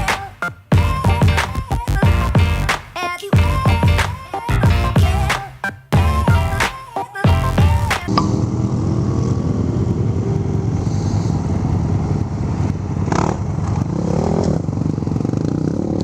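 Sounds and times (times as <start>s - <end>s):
music intro: 3.4s - 8.2s
motorcycle engine running: 11.6s - 16.0s.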